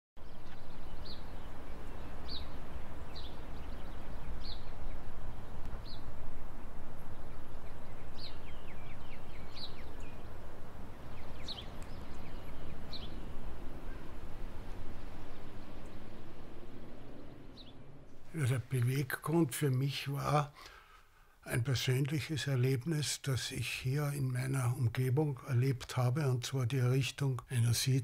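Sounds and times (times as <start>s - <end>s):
small bird chirping: 0.2s - 18.4s
low background rumble: 0.2s - 22.6s.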